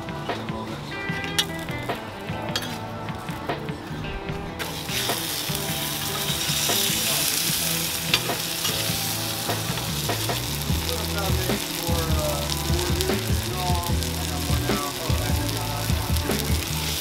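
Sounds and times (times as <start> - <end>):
food sizzling in oil: 4.6 - 17.0.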